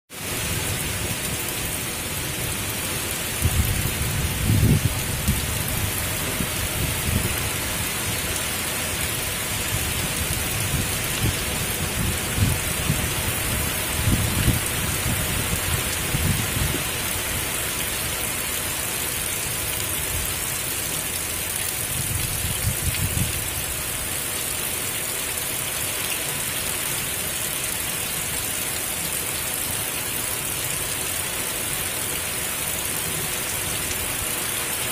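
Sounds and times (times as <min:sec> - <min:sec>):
heavy rain: 0:00.1 - 0:34.9
strong wind: 0:02.4 - 0:17.5, 0:21.9 - 0:23.7.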